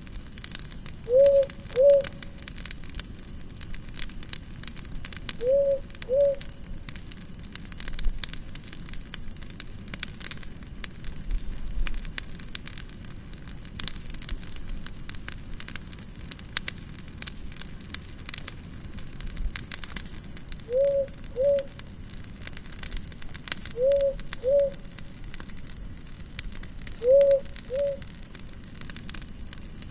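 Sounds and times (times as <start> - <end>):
campfire crackling and popping: 0.0 - 29.9
cricket chirping: 11.4 - 11.8, 14.3 - 16.7, 23.8 - 25.0, 27.0 - 28.1
low animal calls: 23.8 - 24.8, 27.0 - 28.0.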